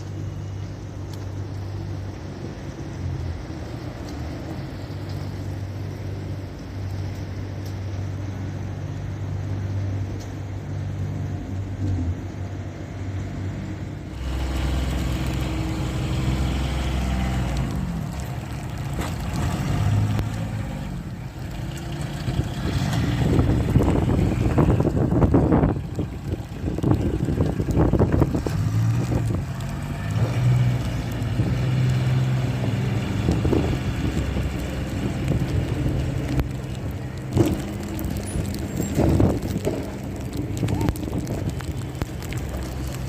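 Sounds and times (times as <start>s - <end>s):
car engines passing: 0.0s - 43.0s
wind buffeting microphone: 22.2s - 43.0s.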